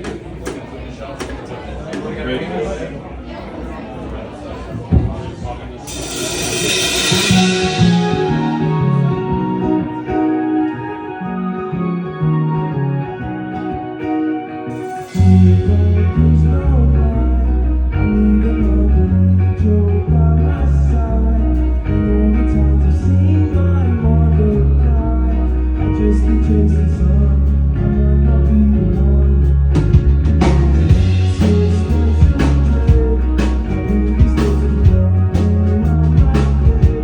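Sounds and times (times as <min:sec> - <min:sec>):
cymbals: 0:05.8 - 0:09.9
guitar: 0:05.8 - 0:37.0
person singing: 0:06.4 - 0:13.2, 0:14.6 - 0:37.0
low bass line: 0:06.5 - 0:10.4, 0:15.1 - 0:37.0.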